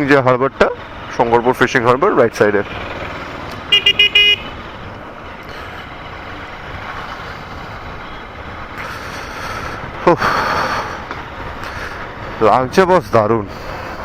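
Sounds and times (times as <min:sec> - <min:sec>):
wind and road noise: 0:00.0 - 0:14.0
vehicle horn beeps: 0:03.7 - 0:04.6.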